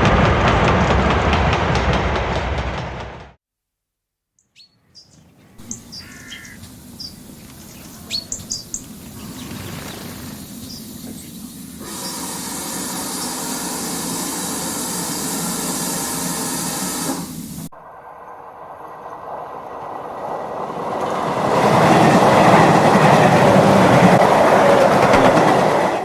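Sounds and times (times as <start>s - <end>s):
train rumble and wheel noise: 0.0s - 3.4s, 5.5s - 26.0s.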